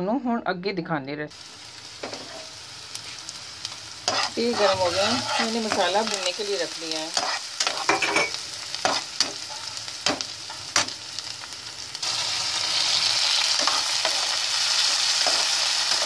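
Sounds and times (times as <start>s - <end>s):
onions frying in hot oil: 1.3s - 16.0s
spatula scraping a pan: 4.0s - 6.4s, 7.1s - 9.8s.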